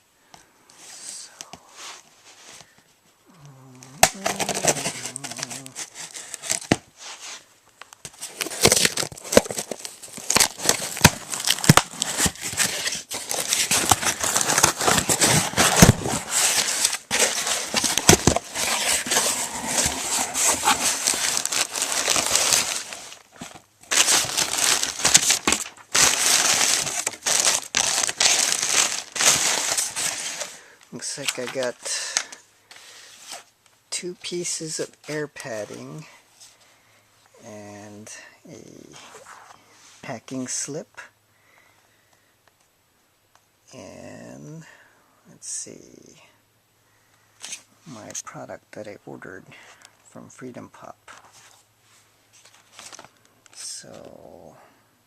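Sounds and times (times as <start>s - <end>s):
tape tearing: 3.4s - 6.8s, 8.0s - 30.6s
plastic air pillows crinkling: 3.8s - 7.4s, 8.0s - 32.4s.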